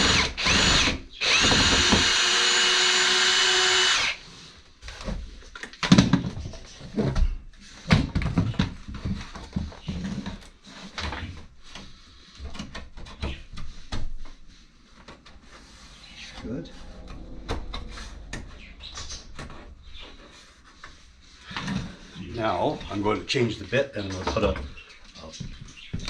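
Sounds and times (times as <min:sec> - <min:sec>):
electric router whining: 0:00.0 - 0:04.2.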